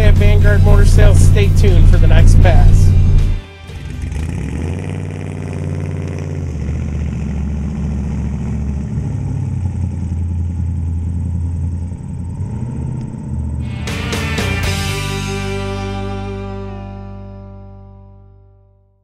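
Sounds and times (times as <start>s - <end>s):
car engine revving and burbling: 0.0s - 16.6s.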